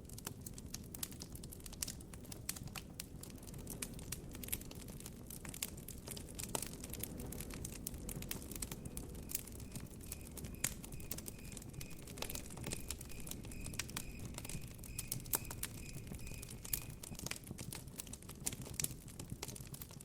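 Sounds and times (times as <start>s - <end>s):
campfire crackling and popping: 0.0s - 20.0s
cricket chirping: 8.9s - 17.1s.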